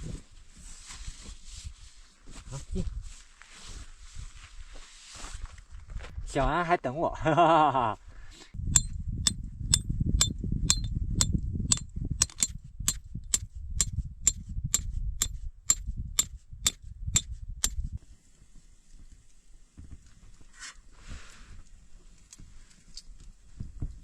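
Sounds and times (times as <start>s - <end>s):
hammer striking metal tent stake: 8.7s - 17.8s.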